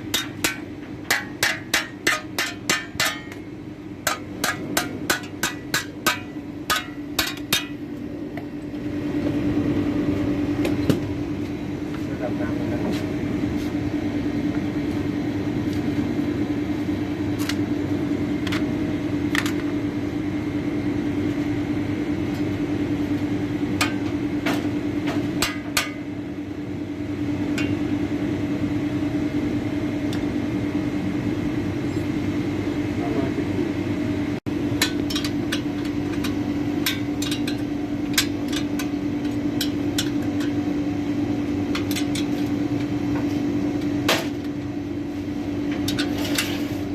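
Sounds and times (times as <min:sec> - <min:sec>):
low machine hum: 0:00.0 - 0:46.9
metal knocks and taps: 0:04.0 - 0:07.8.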